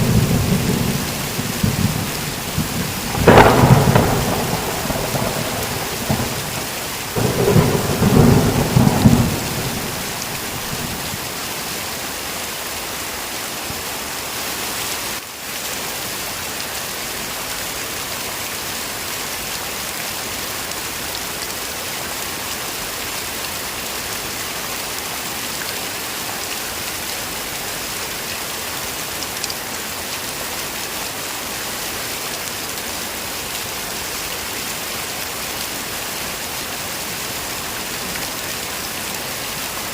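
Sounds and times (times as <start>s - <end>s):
thunder rumble: 0.0s - 11.2s
heavy rain falling: 0.0s - 39.9s.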